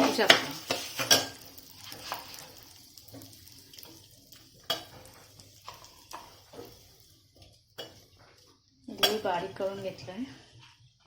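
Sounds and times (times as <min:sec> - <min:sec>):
metal spoon clinking on cookware: 0:00.0 - 0:01.4, 0:08.9 - 0:09.3.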